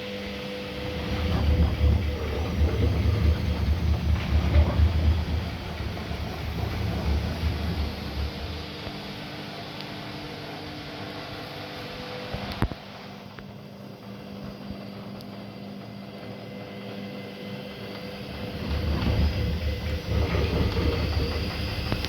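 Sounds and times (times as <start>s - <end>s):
washing machine motor hum: 0.0s - 22.0s
washing machine drum rumble: 0.4s - 12.5s, 17.7s - 22.0s.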